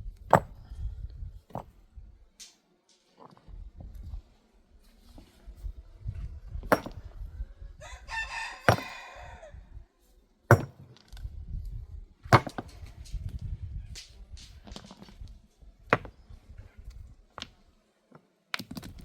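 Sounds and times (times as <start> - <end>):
rooster crowing: 7.8 - 9.6
sharp knocks: 8.7 - 9.0.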